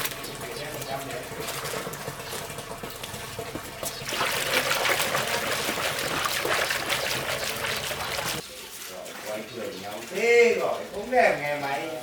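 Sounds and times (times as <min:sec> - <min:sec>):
liquid pouring: 0:00.0 - 0:08.4.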